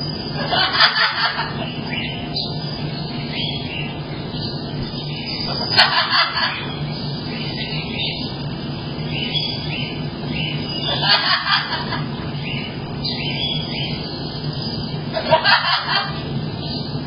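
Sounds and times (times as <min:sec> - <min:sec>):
high chirps: 0:00.0 - 0:15.1
low hum: 0:00.0 - 0:17.0
cockatoo laughing: 0:00.3 - 0:02.1, 0:05.3 - 0:06.8, 0:10.8 - 0:12.4, 0:15.0 - 0:16.4.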